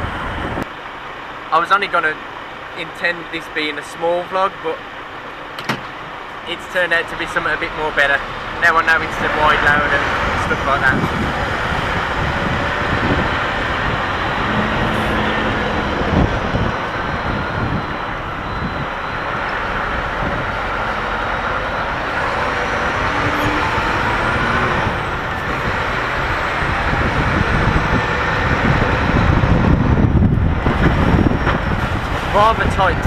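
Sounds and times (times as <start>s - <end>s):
truck diesel engine running: 2.2s - 33.0s.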